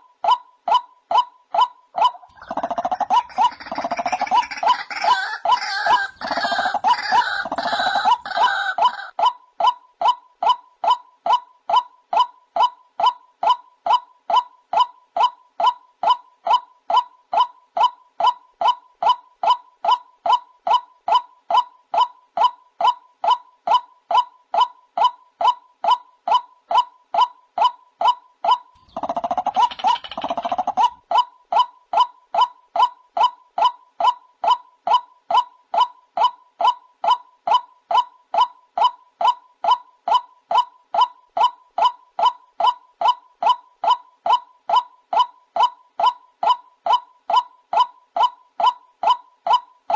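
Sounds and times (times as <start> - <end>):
waterhen repeating kook call: 0.0 - 9.8, 26.4 - 32.6.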